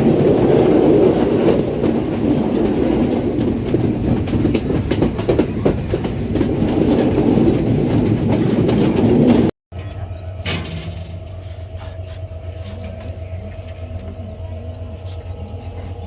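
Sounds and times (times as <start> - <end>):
train rumbling on rails: 0.0 - 16.0
steady hum: 9.8 - 16.0.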